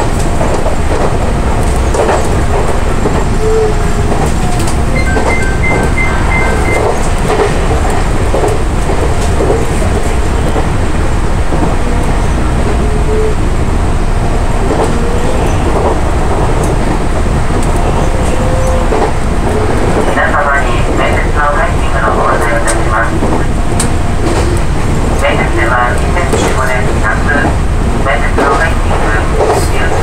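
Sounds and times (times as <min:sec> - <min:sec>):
train wheels rumbling on rails: 0:00.0 - 0:30.0
level crossing warning bell: 0:04.9 - 0:07.2.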